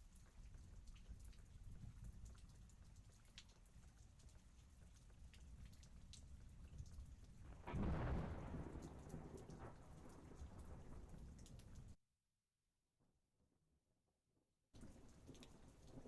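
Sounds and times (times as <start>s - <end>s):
raindrops striking surfaces: 0.0s - 12.0s, 14.8s - 16.0s
thunder rumbling: 7.4s - 11.4s
heavy rain: 7.4s - 11.9s.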